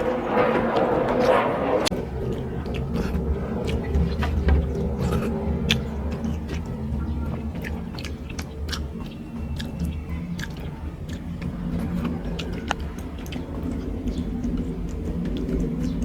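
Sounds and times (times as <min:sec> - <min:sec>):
steady low hum: 0:00.0 - 0:16.0
person chewing and smacking lips: 0:07.6 - 0:11.4.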